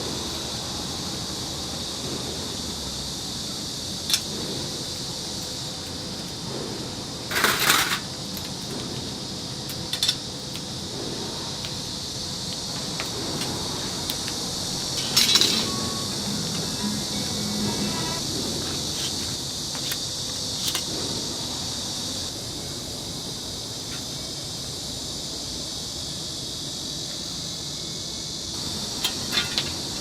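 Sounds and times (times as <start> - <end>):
steady hiss: 0.0 - 30.0
metal clinking and rattling: 14.8 - 16.2, 28.6 - 30.0.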